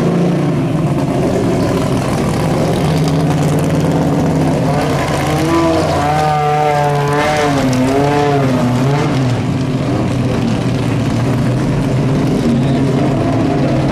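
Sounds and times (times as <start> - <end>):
low racing car engine note: 0.0 - 9.6
second engine rising and falling: 0.0 - 13.9.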